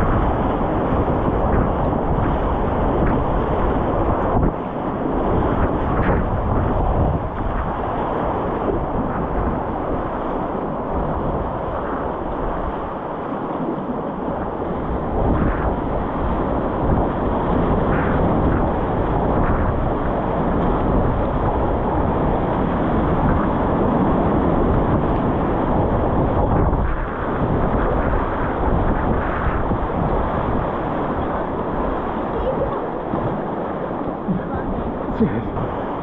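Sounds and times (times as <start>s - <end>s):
wind buffeting microphone: 0.0s - 36.0s
river rapids rushing: 28.6s - 36.0s.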